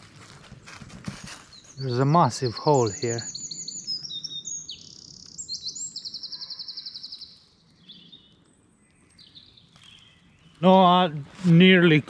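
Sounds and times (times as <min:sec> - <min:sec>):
songbirds chirping: 0:00.0 - 0:12.0
rapid bird trill: 0:01.4 - 0:08.4.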